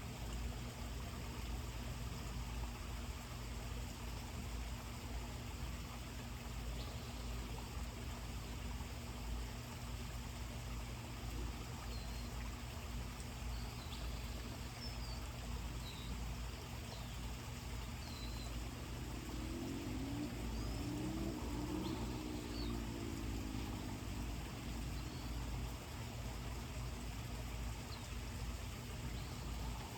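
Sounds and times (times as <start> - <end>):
steady hiss: 0.0 - 29.9
low hum: 16.6 - 29.9
low rising sound: 18.8 - 25.0.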